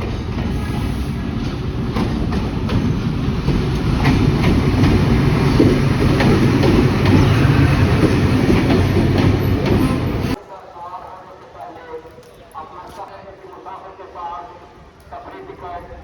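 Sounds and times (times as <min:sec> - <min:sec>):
train rumble: 0:00.0 - 0:10.4
wheels clicking over rail joints: 0:01.2 - 0:10.4.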